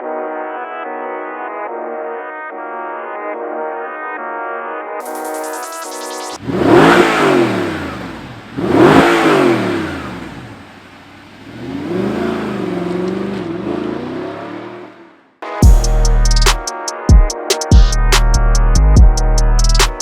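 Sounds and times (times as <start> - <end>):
sports car engine revving: 6.4 - 15.2.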